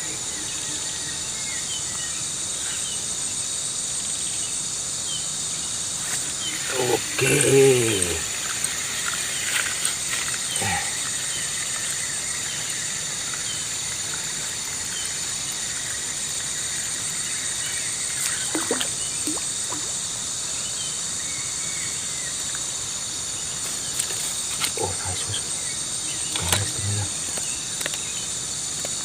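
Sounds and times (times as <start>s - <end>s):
shrill insect chorus: 0.0s - 29.0s.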